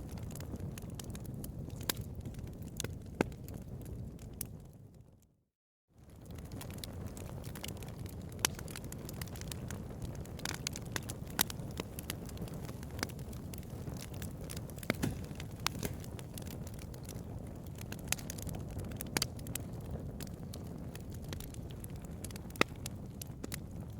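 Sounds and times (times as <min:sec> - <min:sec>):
bonfire crackling and popping: 0:00.0 - 0:05.2, 0:06.0 - 0:23.9.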